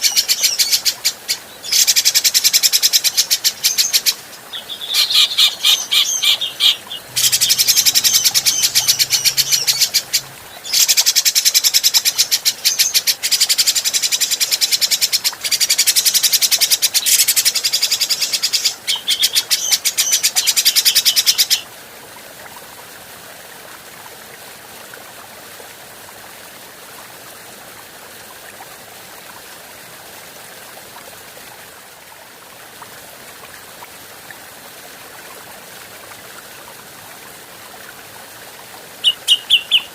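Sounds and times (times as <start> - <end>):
bird harsh chattering calls: 1.7 - 13.0, 39.0 - 39.9.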